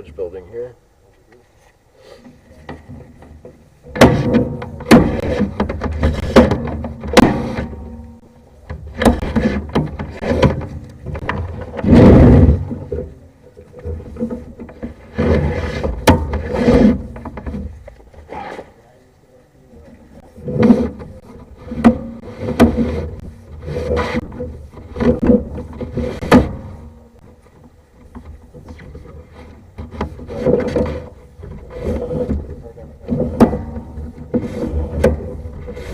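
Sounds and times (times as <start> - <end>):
cable knocking and rubbing in pipe: 20.3 - 35.9.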